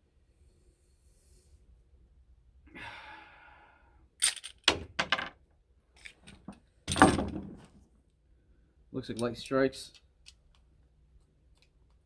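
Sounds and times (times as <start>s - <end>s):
person breathing: 2.7s - 4.1s.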